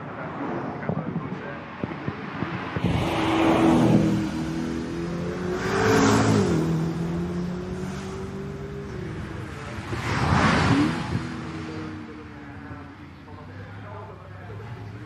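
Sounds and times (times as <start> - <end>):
race car driving past: 2.6 - 13.0.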